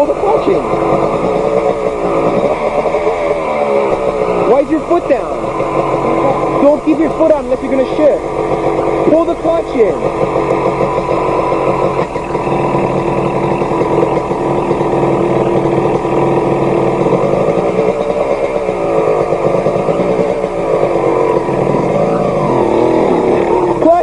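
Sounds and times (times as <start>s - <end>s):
dirt bike engine running: 0.0s - 24.0s.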